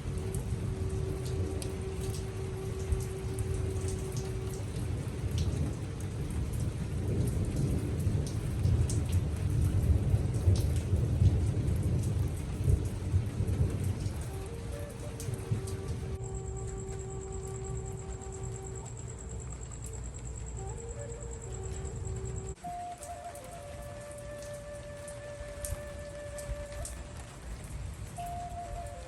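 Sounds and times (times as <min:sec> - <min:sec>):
heavy rain falling: 0:00.0 - 0:29.0
low roll of thunder: 0:00.0 - 0:29.0.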